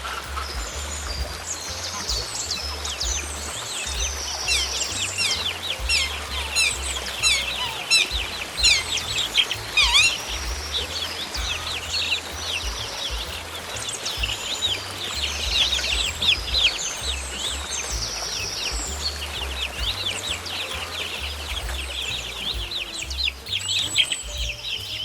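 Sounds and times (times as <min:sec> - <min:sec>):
low rumble: 0:00.0 - 0:25.0
songbirds chirping: 0:00.0 - 0:25.0.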